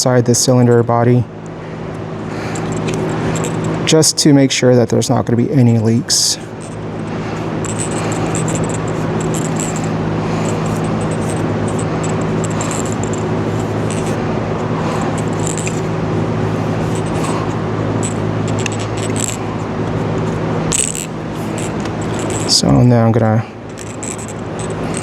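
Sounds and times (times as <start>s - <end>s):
low machine hum: 0.0s - 25.0s
tape rustling: 2.3s - 3.9s, 6.4s - 22.6s
small metallic clicks: 2.4s - 3.9s, 6.4s - 14.2s, 14.8s - 16.0s, 16.8s - 22.6s, 23.7s - 25.0s.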